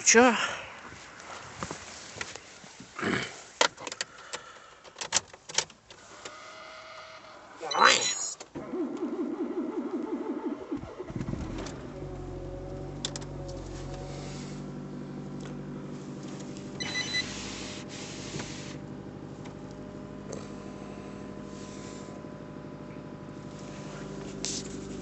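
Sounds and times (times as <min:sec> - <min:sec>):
car engine idling: 0:08.4 - 0:25.0
starter motor cranking: 0:08.5 - 0:14.6.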